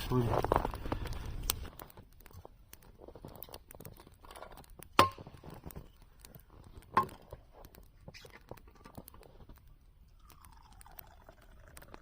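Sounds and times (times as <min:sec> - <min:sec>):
small clicks: 0:00.6 - 0:09.7.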